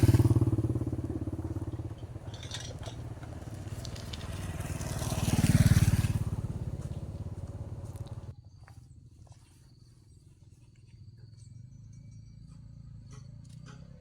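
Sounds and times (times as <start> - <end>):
motorbike engine running: 0.0 - 8.3.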